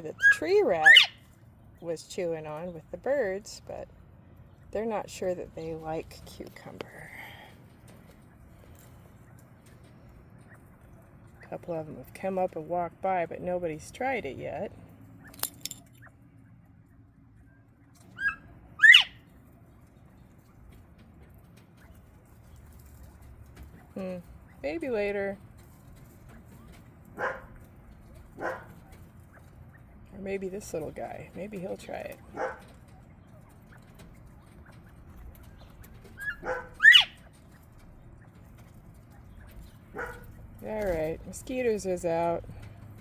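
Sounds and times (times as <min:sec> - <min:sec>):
quail calling: 0:00.0 - 0:01.4, 0:18.0 - 0:19.3, 0:34.6 - 0:37.6.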